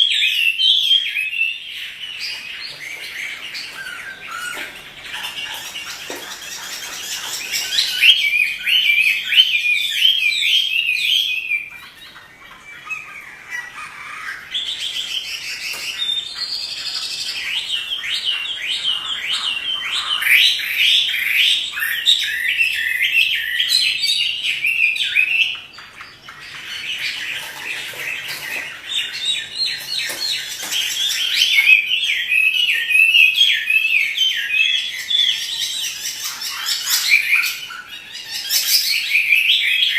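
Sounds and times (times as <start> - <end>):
bird singing whistled notes: 6.6 - 13.2, 29.0 - 39.9.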